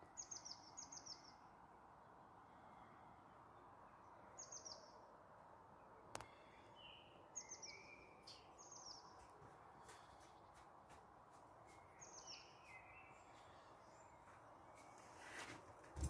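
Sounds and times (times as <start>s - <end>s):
birds chirping: 0.0s - 1.5s, 3.6s - 5.1s, 5.8s - 15.4s.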